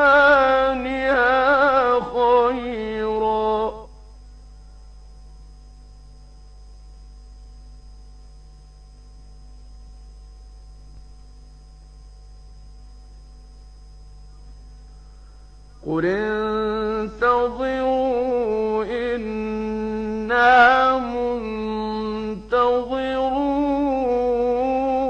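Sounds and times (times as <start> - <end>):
man chanting recitation: 0.0 - 4.0, 15.8 - 25.0
electrical hum: 0.0 - 25.0.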